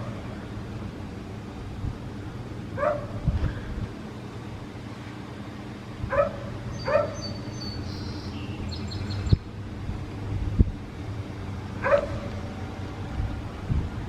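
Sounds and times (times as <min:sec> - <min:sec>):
dog barking: 0:02.8 - 0:03.2, 0:06.1 - 0:07.2, 0:11.8 - 0:12.3.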